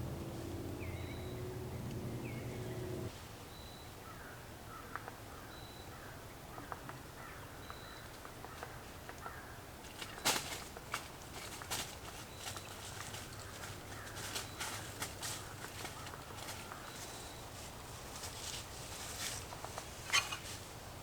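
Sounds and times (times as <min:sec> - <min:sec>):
steady low hum: 0:00.0 - 0:03.1
crows cawing: 0:08.5 - 0:10.2, 0:13.2 - 0:17.0.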